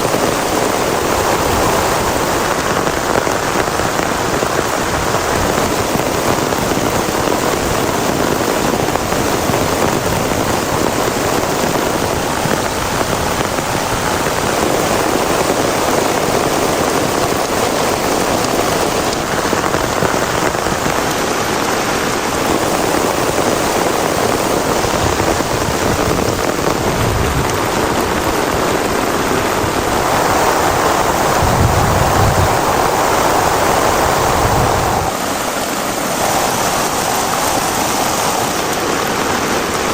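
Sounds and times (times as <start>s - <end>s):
heavy rain falling: 0.0s - 39.9s
low rumbles: 26.6s - 38.0s.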